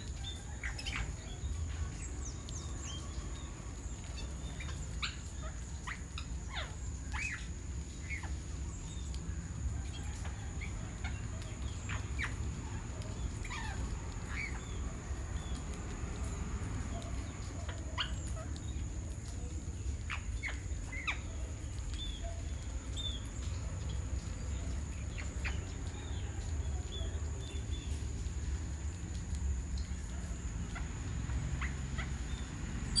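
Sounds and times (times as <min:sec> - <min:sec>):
bird calls and chirps: 0:00.0 - 0:28.0, 0:29.8 - 0:33.0.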